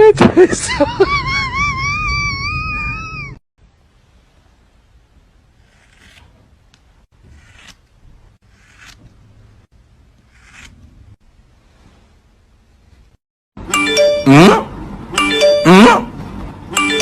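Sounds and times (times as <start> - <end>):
faint soft rustling: 11.6 - 13.2.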